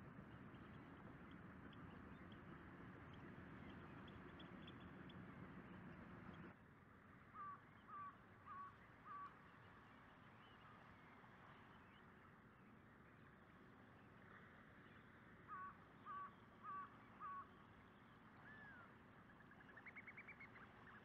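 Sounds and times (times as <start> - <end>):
faint outdoor hiss: 0.0 - 21.0
bird calling: 15.4 - 21.0.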